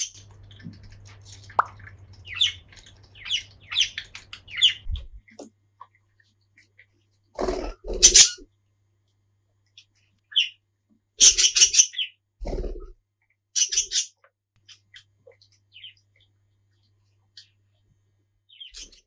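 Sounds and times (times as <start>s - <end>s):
budgerigar chirping: 3.2s - 5.0s, 7.9s - 8.4s, 11.2s - 12.1s, 13.6s - 14.1s.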